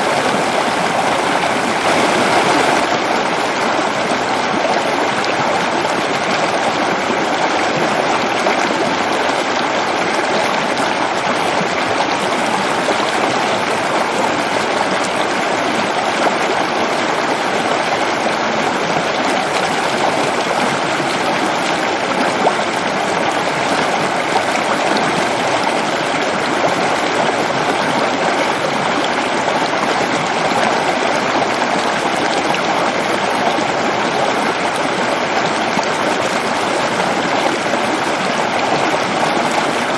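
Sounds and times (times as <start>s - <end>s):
waterfall rushing: 0.0s - 3.6s, 10.9s - 28.3s, 35.6s - 39.9s.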